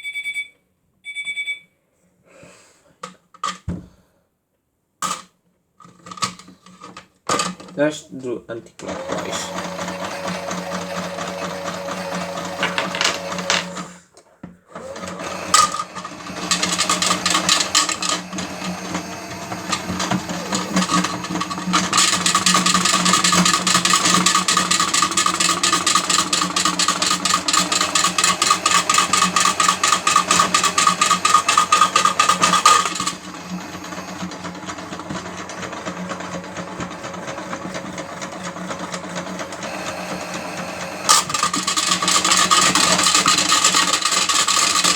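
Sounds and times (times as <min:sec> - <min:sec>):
toy washing machine motor whirring: 0:08.8 - 0:14.0, 0:14.7 - 0:44.9.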